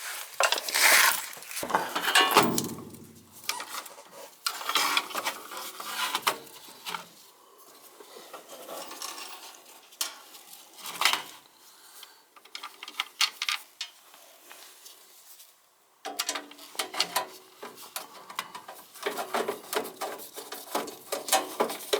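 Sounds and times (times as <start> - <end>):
small metal tools clinking: 0.4 - 3.6.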